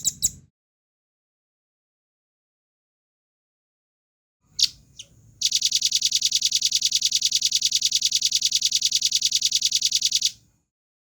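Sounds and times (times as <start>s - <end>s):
bird singing fast trill: 4.5s - 10.4s.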